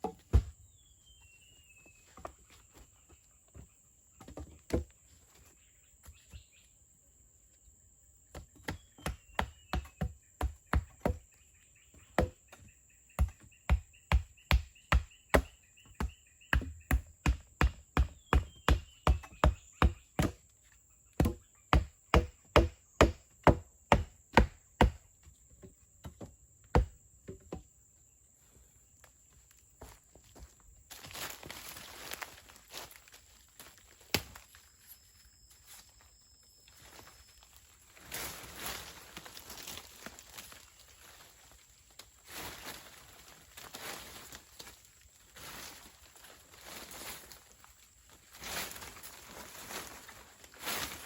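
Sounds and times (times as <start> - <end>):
wood being chopped: 0.0 - 0.5, 8.3 - 11.2, 12.2 - 20.4, 21.2 - 25.0, 26.1 - 27.5, 34.1 - 34.5.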